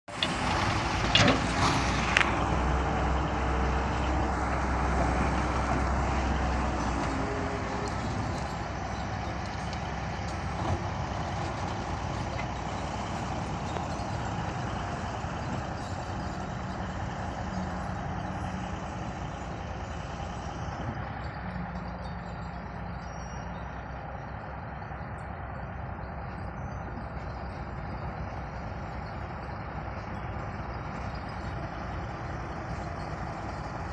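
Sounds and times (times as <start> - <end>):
heavy machine running: 0.1 - 33.9.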